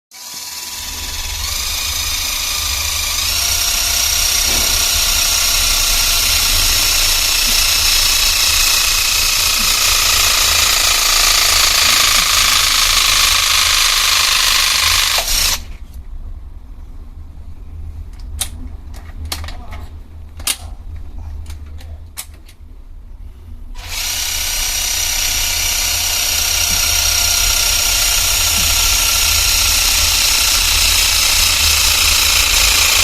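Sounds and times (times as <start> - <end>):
crimping tool motor whine: 0.1 - 15.7, 23.8 - 33.0.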